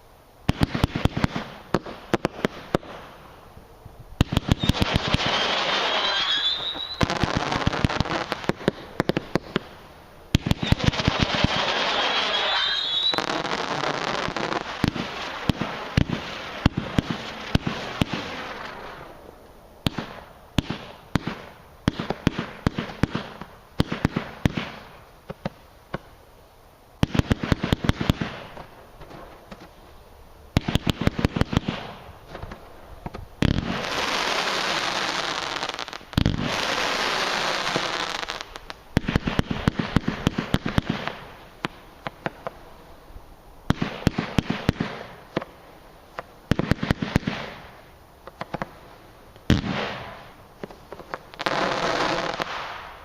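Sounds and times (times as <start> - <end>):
firework pops and crackles: 0.4 - 3.2, 4.2 - 19.2, 19.8 - 26.2, 27.0 - 29.9, 30.5 - 42.6, 43.7 - 53.0
firework hissing: 4.2 - 25.6, 30.6 - 42.9, 46.5 - 53.0.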